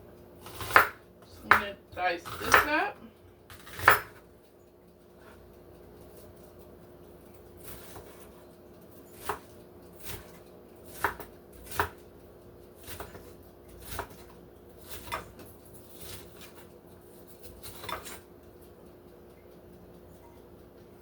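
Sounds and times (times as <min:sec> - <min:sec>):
knife chopping on cutting board: 0:00.4 - 0:02.8, 0:03.5 - 0:04.2, 0:07.6 - 0:08.3, 0:09.1 - 0:12.0, 0:12.8 - 0:16.7, 0:17.3 - 0:18.2.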